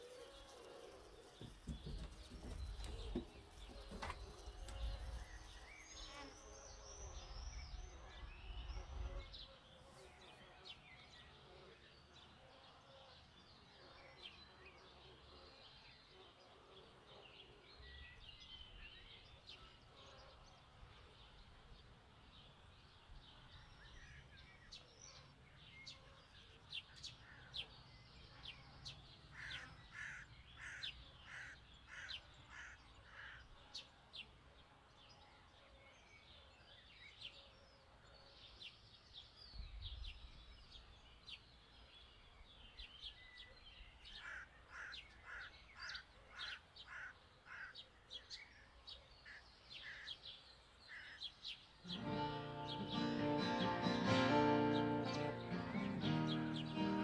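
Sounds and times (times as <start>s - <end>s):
small birds chirping and trilling: 0.0s - 16.2s, 35.1s - 57.0s.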